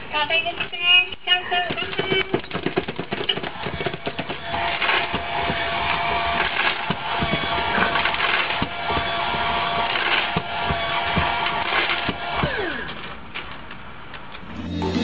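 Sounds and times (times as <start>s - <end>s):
feeder motor whine: 3.6s - 13.2s.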